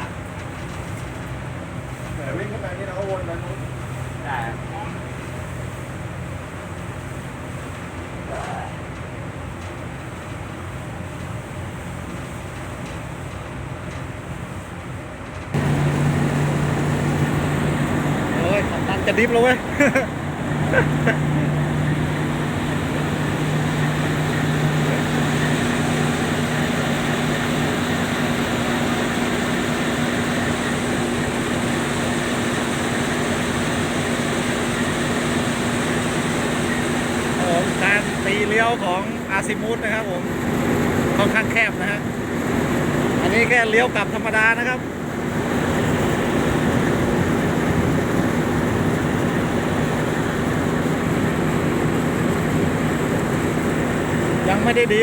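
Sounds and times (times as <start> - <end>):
boat engine hum: 0.0 - 55.0
lower engine hum: 15.5 - 55.0
water rushing: 15.6 - 55.0.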